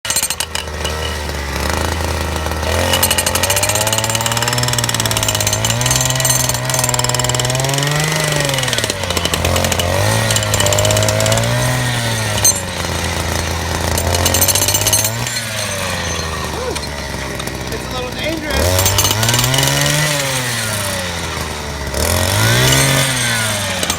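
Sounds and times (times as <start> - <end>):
jackhammer clattering: 0.0 - 23.9.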